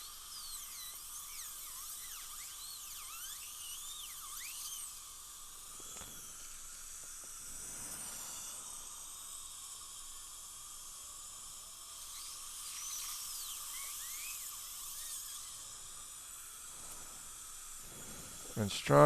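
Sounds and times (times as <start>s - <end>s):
dental drill whining: 0.0s - 19.0s.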